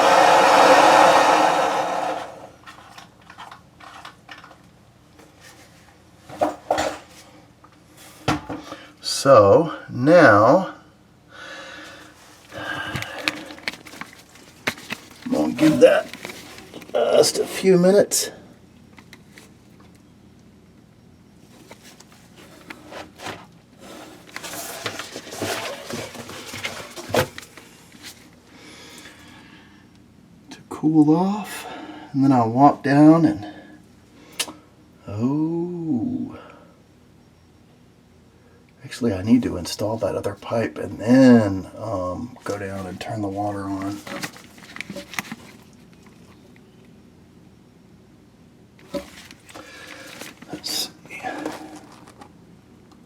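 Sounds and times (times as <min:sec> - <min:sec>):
rustling: 0:12.2 - 0:17.5, 0:21.5 - 0:28.3, 0:42.4 - 0:46.5, 0:48.8 - 0:52.4.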